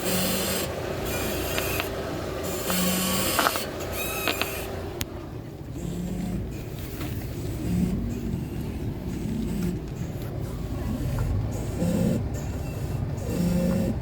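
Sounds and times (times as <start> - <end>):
suspension creaking: 0.0 - 14.0.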